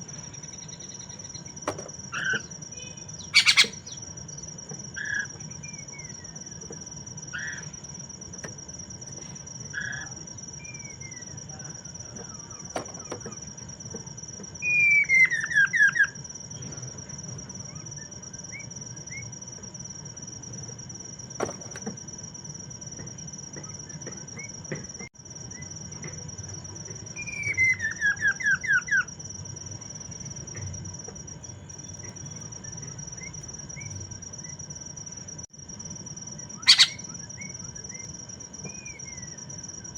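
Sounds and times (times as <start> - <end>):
high insect trill: 0.0 - 39.9
bird chirps: 0.1 - 1.6, 2.2 - 4.5, 36.6 - 39.4.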